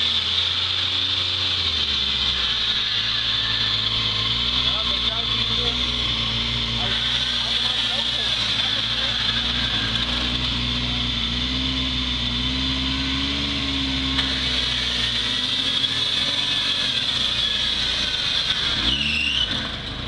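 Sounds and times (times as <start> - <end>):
off-road engine running under load: 0.0 - 20.0
steady high whine: 0.0 - 20.0.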